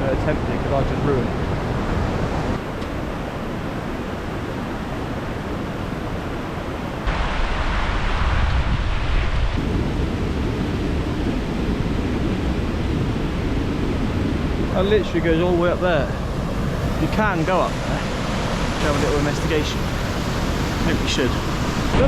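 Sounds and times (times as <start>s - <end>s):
waterfall rushing: 14.9s - 22.0s.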